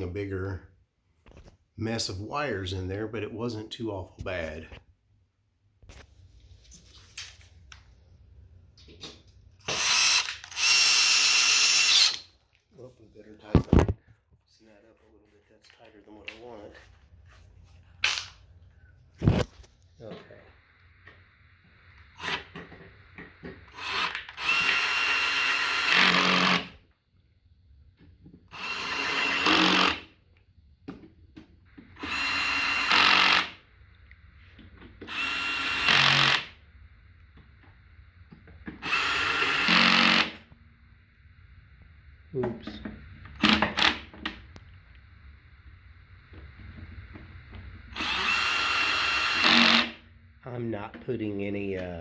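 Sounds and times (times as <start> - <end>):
power drill whirring: 9.6 - 12.3, 21.8 - 26.8, 28.5 - 30.1, 31.8 - 33.6, 35.0 - 36.6, 38.8 - 40.5, 43.3 - 44.4, 47.8 - 50.1.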